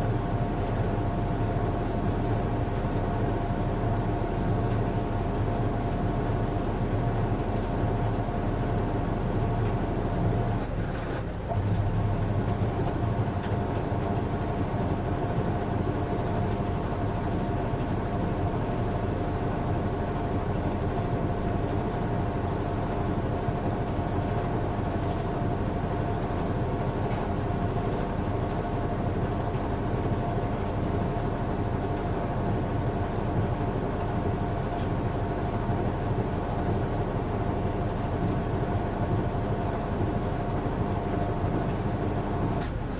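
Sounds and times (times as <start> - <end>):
washing machine whine: 0.0 - 42.9
washing machine motor hum: 22.0 - 42.9.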